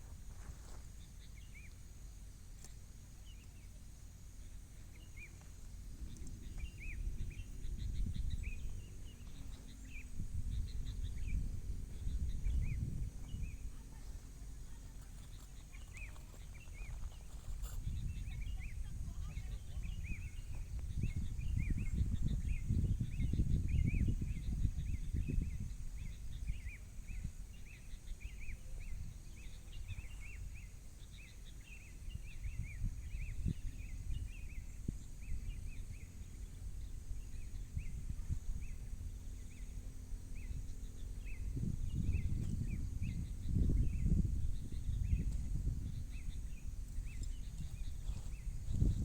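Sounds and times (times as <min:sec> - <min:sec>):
gusty wind on microphone: 0:05.8 - 0:30.8, 0:31.8 - 0:49.0.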